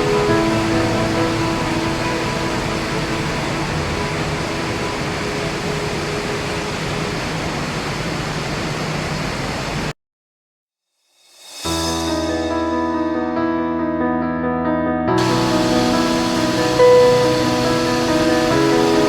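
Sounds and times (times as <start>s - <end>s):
machinery hum and hiss: 0.0s - 9.9s, 15.2s - 19.0s.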